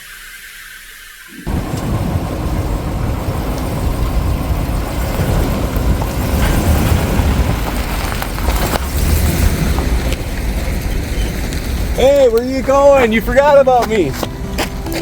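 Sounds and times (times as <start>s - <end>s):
truck engine and road rumble: 1.5s - 15.0s.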